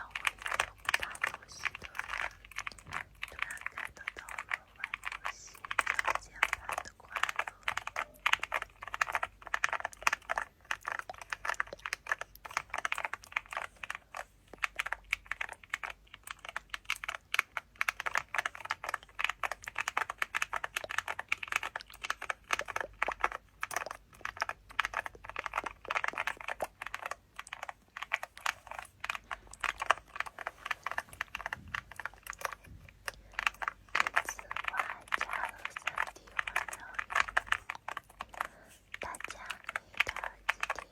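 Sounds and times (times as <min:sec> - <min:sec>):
fast typing on a keyboard: 0:00.0 - 0:40.9.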